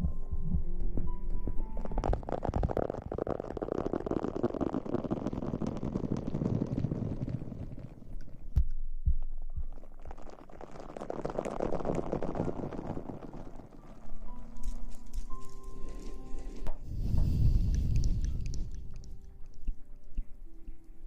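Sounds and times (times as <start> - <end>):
soft low thumps: 0.0 - 3.4, 7.9 - 10.2
crackling rustle on microphone: 1.5 - 8.6, 9.2 - 21.0.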